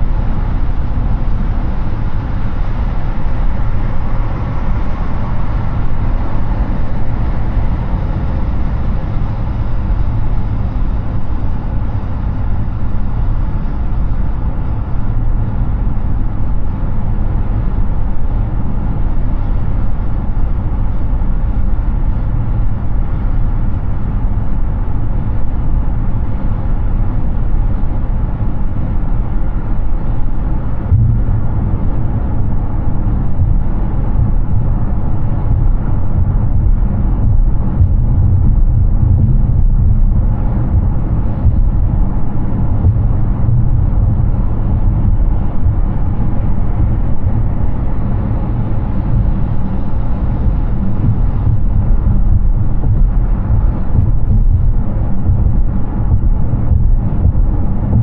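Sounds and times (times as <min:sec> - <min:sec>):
car tyre and wind road noise: 0:00.0 - 0:58.0
short low thump: 0:30.9 - 0:31.8, 0:33.4 - 0:42.1, 0:42.8 - 0:44.3, 0:51.0 - 0:58.0.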